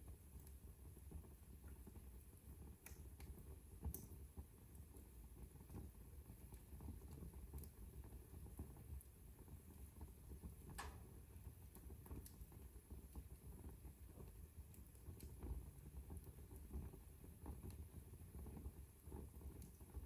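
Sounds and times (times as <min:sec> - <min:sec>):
wood fire crackling: 0:00.0 - 0:20.0
sharp fire snap: 0:02.8 - 0:04.2, 0:10.7 - 0:11.2.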